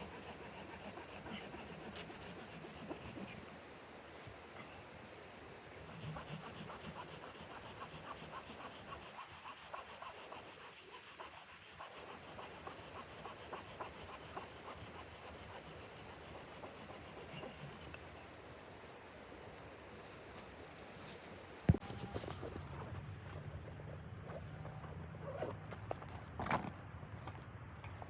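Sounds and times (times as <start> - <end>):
scraping strokes on wood: 0.0 - 3.4, 5.8 - 18.0.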